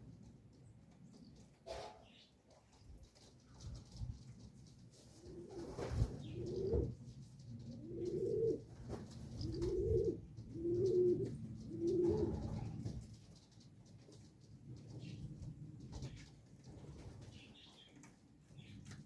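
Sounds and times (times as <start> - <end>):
pigeon cooing: 5.1 - 7.0, 7.6 - 12.9.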